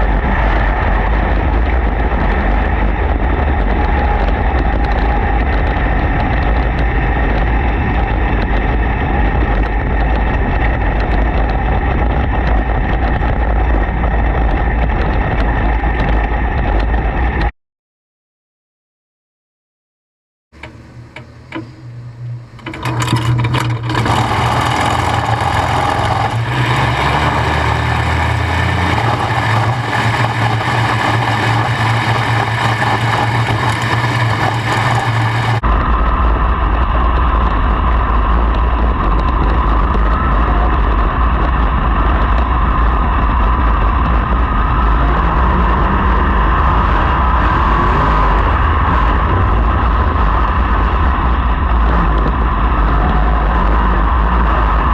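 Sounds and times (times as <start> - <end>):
racing engines roaring: 20.6 - 54.9.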